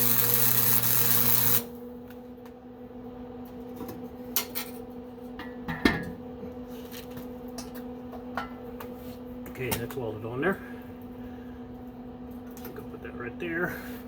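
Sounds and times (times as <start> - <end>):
welding arc hissing and crackling: 0.0 - 1.8
steady electrical hum: 0.0 - 14.0.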